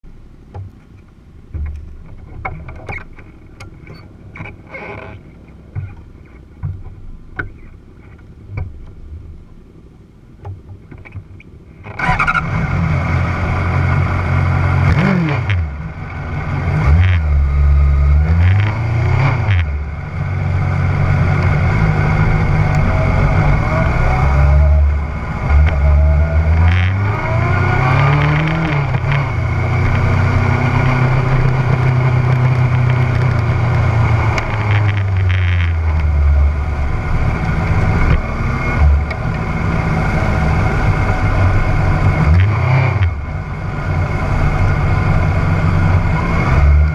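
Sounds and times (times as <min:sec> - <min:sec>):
scattered clicks and knocks: 0:00.5 - 0:04.6, 0:05.7 - 0:09.1, 0:34.3 - 0:36.1
motorcycle engine starting and idling: 0:11.0 - 0:18.8
motorcycle throttle blips: 0:13.5 - 0:46.9.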